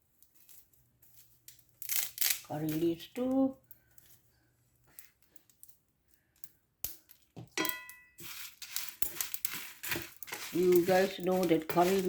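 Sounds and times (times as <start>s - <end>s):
spices crackling in dry pan: 0.0s - 12.0s
metal utensil striking pan: 7.5s - 8.3s.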